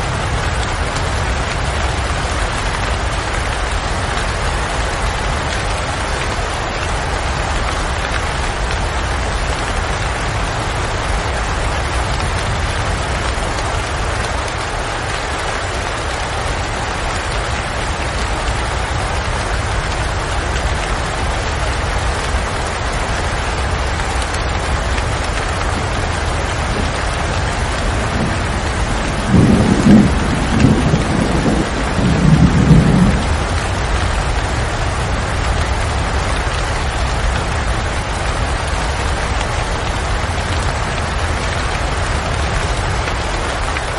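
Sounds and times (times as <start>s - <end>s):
heavy rain falling: 0.0s - 43.9s
thunder rumbling: 24.7s - 39.1s.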